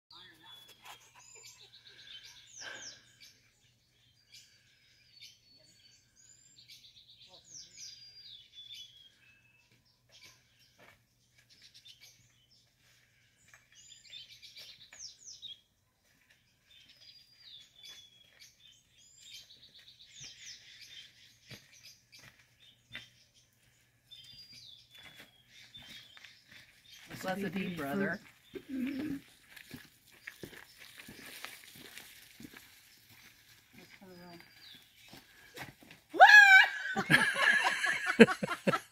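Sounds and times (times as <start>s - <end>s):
songbird singing: 0.1s - 38.9s.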